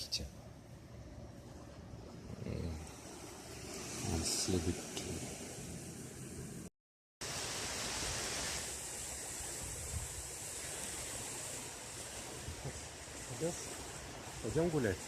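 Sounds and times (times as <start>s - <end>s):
wind: 0.0s - 15.0s
sea surf rushing: 2.2s - 6.4s, 7.2s - 15.0s.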